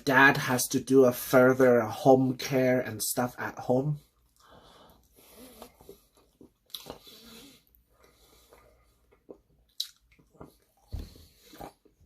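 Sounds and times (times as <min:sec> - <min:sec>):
person chewing food: 0:04.1 - 0:12.0.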